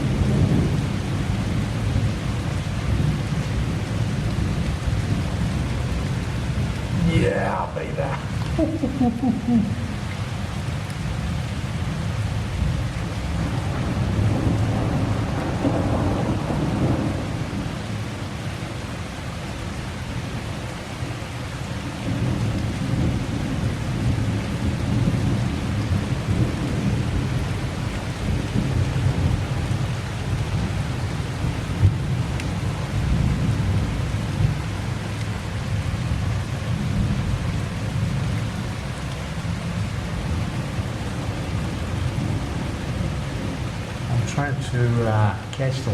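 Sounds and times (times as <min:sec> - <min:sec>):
thunder rumbling: 0:00.0 - 0:18.3, 0:22.0 - 0:38.6
heavy rain falling: 0:00.0 - 0:45.9.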